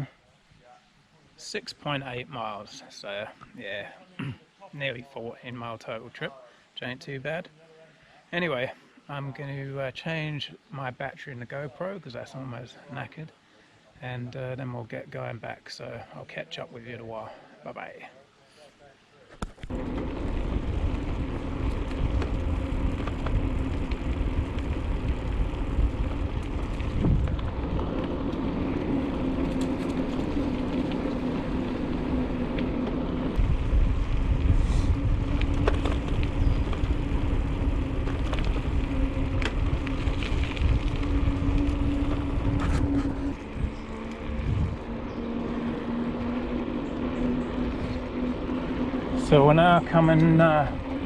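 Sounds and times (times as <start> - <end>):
bicycle tyre noise: 19.4 - 51.0
steady hum: 19.6 - 51.0
wind noise on microphone: 19.7 - 30.8, 33.3 - 45.2.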